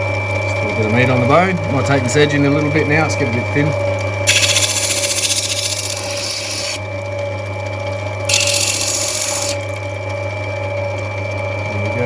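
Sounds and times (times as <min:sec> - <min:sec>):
grinding wheel motor running: 0:00.0 - 0:10.8
stone grinding on wheel: 0:04.3 - 0:06.8, 0:08.3 - 0:09.8.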